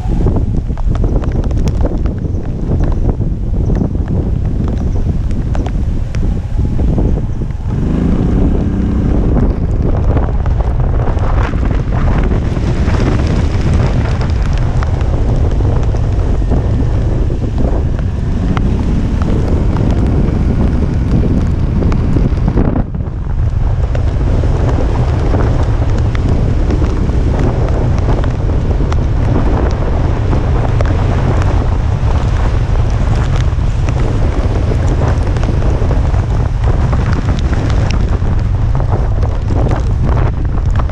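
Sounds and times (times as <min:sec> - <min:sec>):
rush of wind noise: 0:00.0 - 0:40.9
wind buffeting microphone: 0:00.0 - 0:40.9.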